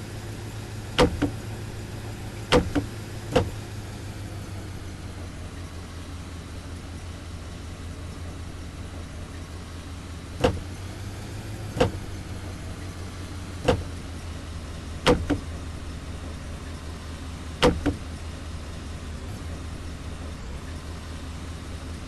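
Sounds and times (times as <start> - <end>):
car engine humming: 0.0 - 22.0
sharp knocks: 1.0 - 1.4, 2.5 - 3.5, 15.1 - 15.4, 17.6 - 18.0.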